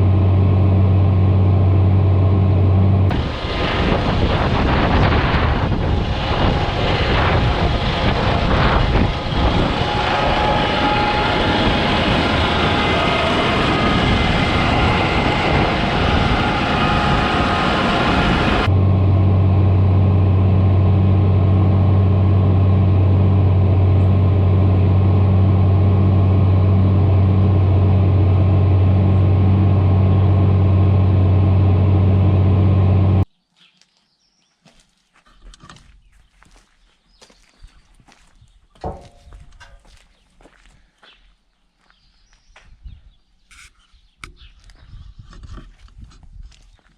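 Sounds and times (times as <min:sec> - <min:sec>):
low engine drone: 0:00.0 - 0:33.3
tractor running: 0:00.0 - 0:33.3.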